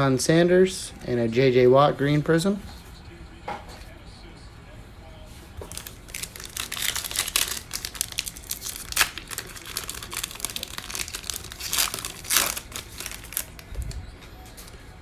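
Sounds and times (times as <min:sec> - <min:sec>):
plastic wrapper tearing and crinkling: 0:05.6 - 0:14.0.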